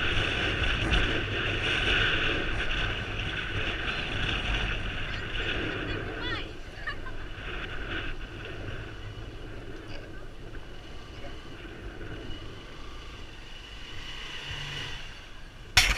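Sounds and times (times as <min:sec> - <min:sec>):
engine running: 0:00.0 - 0:15.9
wind noise: 0:00.0 - 0:15.9.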